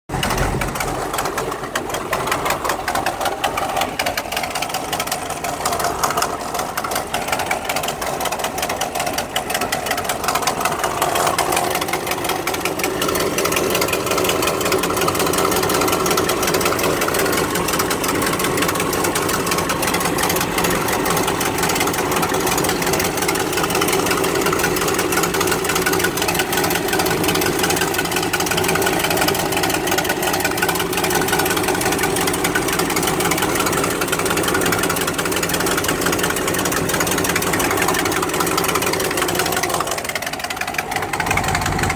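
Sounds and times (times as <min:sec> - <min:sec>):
engine idling: 0:00.1 - 0:41.9
exhaust leak ticking: 0:00.1 - 0:41.9.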